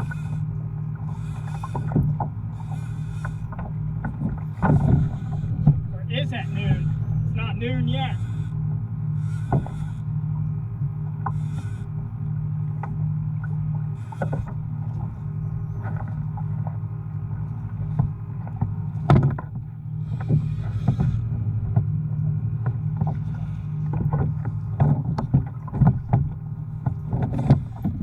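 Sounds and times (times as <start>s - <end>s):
steady low hum: 0.0s - 28.0s
water splashing against hull: 0.0s - 28.0s
knocks on kayak hull: 19.0s - 19.6s.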